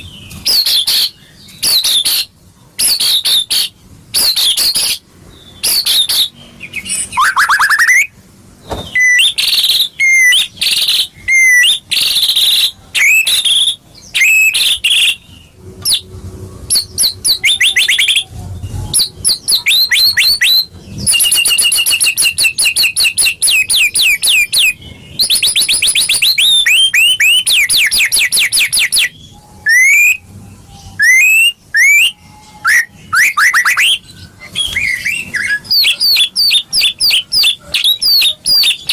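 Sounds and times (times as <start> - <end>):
songbird singing varied song: 16.7 - 38.9.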